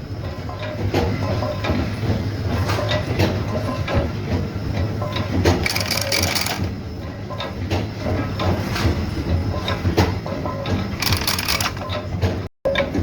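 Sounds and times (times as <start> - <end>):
machinery humming: 4.5 - 7.3, 10.7 - 12.4
clattering clicks and knocks: 5.1 - 6.8, 9.9 - 12.5.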